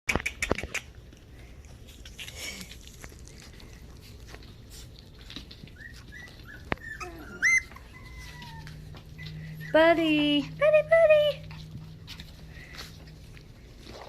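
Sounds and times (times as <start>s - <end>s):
puppies whimpering: 5.2s - 12.7s.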